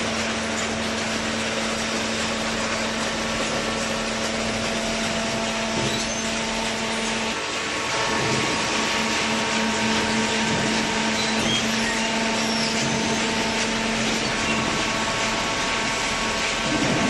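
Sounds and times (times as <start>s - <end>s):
motor hum: 0.0s - 17.0s
shredding machinery rushing noise: 6.4s - 17.0s.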